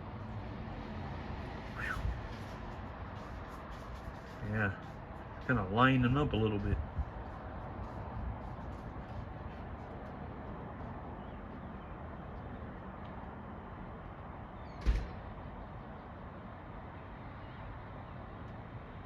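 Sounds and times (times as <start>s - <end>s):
outdoor background noise: 0.0s - 19.0s
sharp thump: 14.8s - 15.2s.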